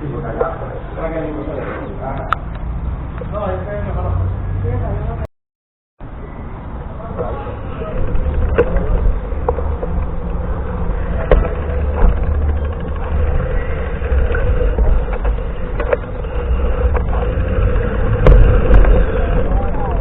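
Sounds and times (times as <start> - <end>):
road noise: 0.0 - 5.3, 6.0 - 20.0
wind buffeting microphone: 6.7 - 20.0
sharp knocks: 18.0 - 19.3.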